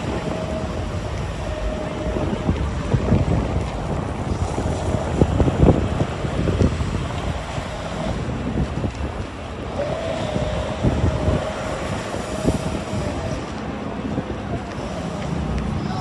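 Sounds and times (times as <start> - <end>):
steady rushing noise: 0.0 - 16.0
wind buffeting microphone: 0.0 - 16.0.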